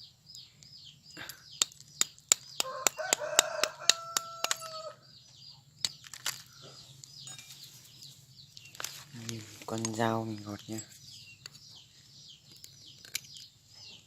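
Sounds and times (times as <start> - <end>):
high bird chirps: 0.0 - 14.0
rooster crowing: 2.6 - 5.0.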